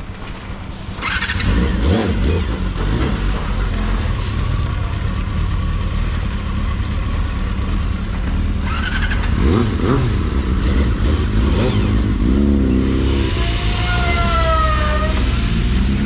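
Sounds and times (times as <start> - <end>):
motorcycle engine rumble: 0.0 - 16.0
rising whine: 11.7 - 16.0.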